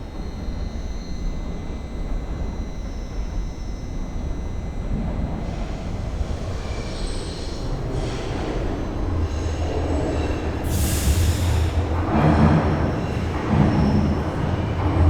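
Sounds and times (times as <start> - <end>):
subway train rumbling on rails: 0.0 - 15.0
high wheel squeal: 5.5 - 11.9.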